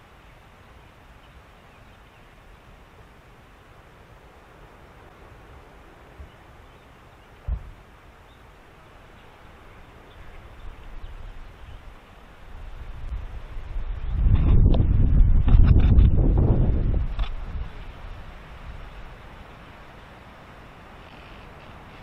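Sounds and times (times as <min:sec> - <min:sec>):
soft steady hiss: 0:00.0 - 0:22.0
low thump: 0:07.5 - 0:07.8
wind buffeting microphone: 0:09.2 - 0:22.0.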